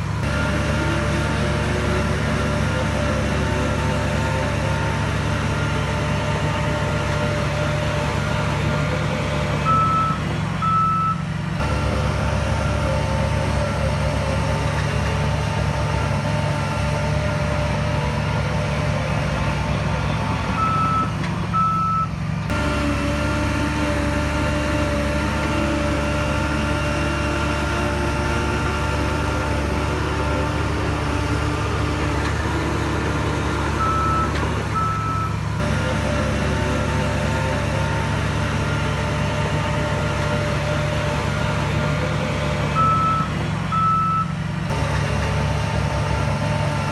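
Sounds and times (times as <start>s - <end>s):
heavy diesel machinery running: 0.0s - 46.9s
reversing alarm beeps: 9.7s - 11.2s, 20.6s - 22.1s, 33.8s - 35.4s, 42.8s - 44.3s.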